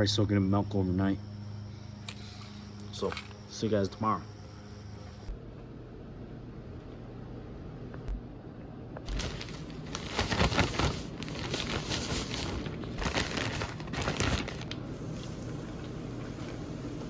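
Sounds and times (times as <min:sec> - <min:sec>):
rustling and crinkling: 0:09.0 - 0:15.5.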